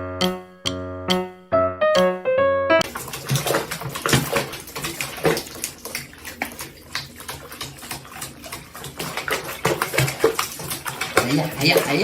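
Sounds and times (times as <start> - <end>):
water splashing and sloshing: 2.8 - 12.0.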